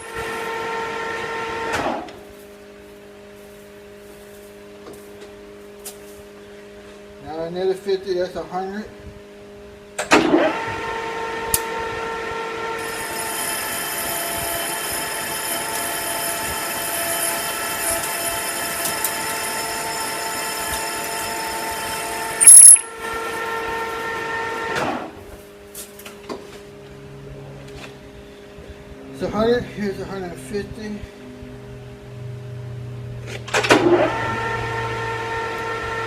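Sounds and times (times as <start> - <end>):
metal lathe whine: 0.0 - 1.7, 10.5 - 24.8, 34.0 - 36.0.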